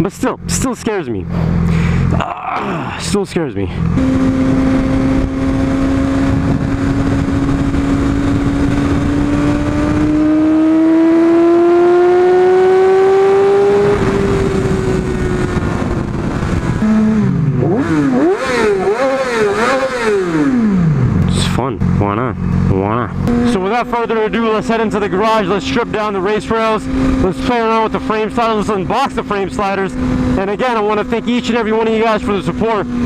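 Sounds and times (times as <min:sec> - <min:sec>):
motorcycle engine: 0:00.0 - 0:33.0
wind noise: 0:03.7 - 0:21.4.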